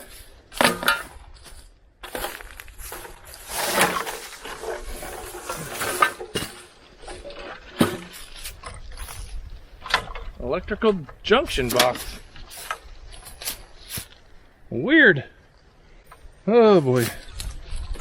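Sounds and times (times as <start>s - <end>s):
scrap metal clanking and scraping: 0.0s - 10.3s, 11.1s - 14.2s.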